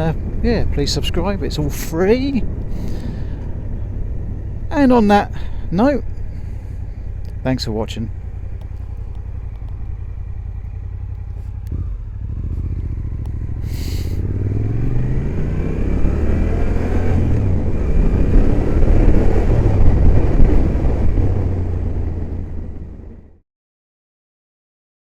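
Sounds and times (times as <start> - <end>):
motorcycle engine revving: 0.0 - 23.4
road and wind noise: 0.0 - 23.4.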